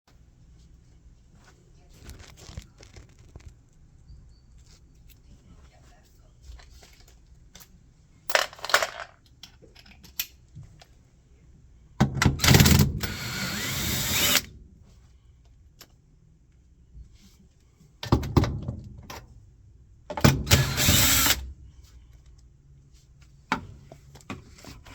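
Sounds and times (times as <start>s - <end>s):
tool clicks and clatter: 8.3s - 10.3s
power drill running: 12.4s - 14.5s, 20.5s - 21.4s.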